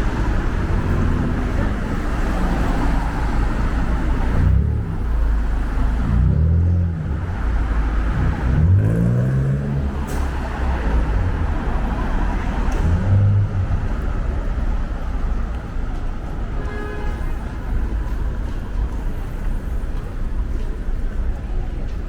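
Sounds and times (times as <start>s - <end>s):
vehicle accelerating: 0.0s - 15.0s
cars passing on street: 0.0s - 22.0s.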